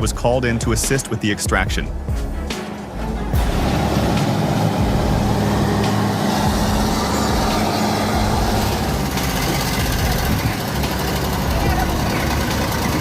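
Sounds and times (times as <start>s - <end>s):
heavy vehicle engine droning: 2.7s - 13.0s.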